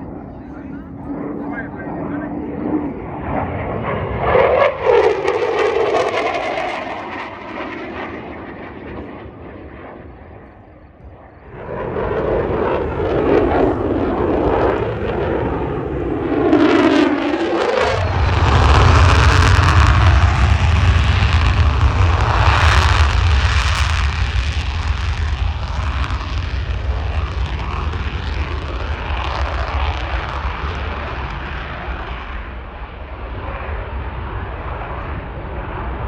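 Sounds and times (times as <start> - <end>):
airplane flying low past: 0.0 - 36.0
deep rumbling roar: 11.4 - 32.1.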